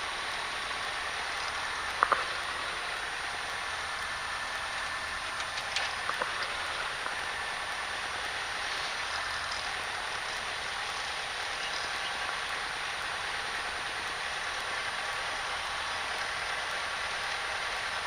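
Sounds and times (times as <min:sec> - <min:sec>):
light aircraft engine idling: 0:00.0 - 0:18.0.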